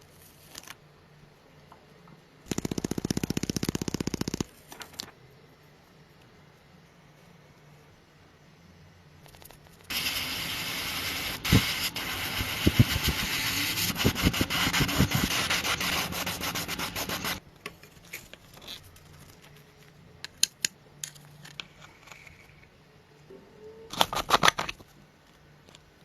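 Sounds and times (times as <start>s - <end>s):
sanding rasp: 9.9s - 17.4s.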